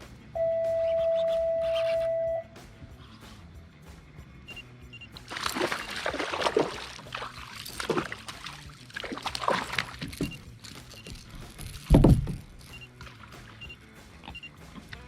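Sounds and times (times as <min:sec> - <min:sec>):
water splashing and sloshing: 0:05.0 - 0:14.9
heavy low thump: 0:11.2 - 0:12.6.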